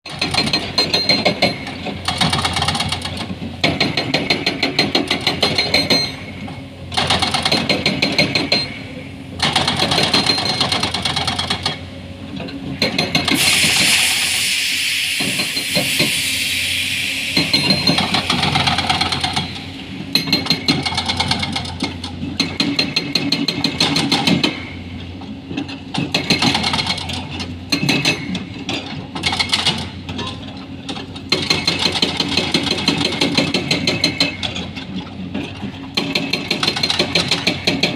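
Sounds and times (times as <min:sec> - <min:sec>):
hydraulic breaker hammering rock: 0:00.1 - 0:06.3, 0:06.9 - 0:11.8, 0:12.7 - 0:13.8, 0:17.3 - 0:24.7, 0:26.0 - 0:28.4, 0:31.3 - 0:34.7, 0:35.9 - 0:37.9
rushing machine noise: 0:00.1 - 0:24.7.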